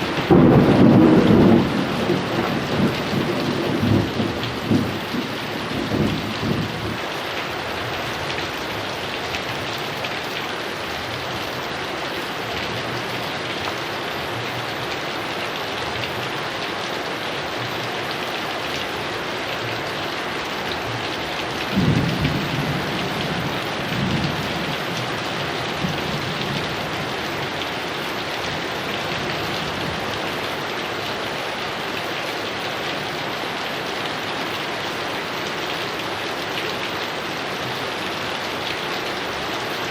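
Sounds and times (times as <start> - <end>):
thunder rumbling: 0.0 - 7.1, 20.9 - 27.6
heavy rain falling: 0.0 - 39.9.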